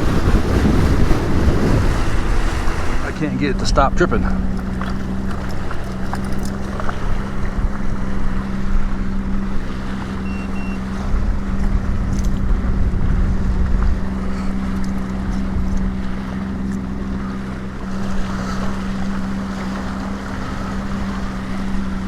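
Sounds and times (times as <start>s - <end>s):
choppy water against hull: 0.0s - 22.0s
watercraft engine low hum: 0.0s - 22.0s
wind on microphone: 0.0s - 22.0s
short electronic beep: 10.2s - 10.9s.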